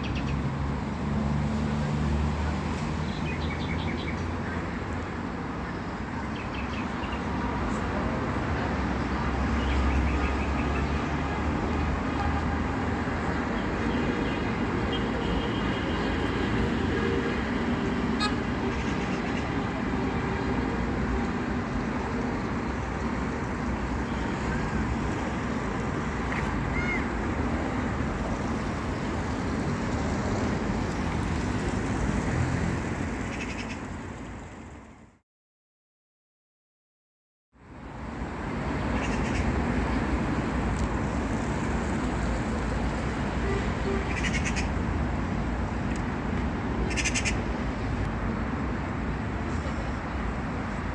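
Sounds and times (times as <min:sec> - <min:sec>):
hum of passing vehicles: 0:00.0 - 0:35.2, 0:37.6 - 0:50.9.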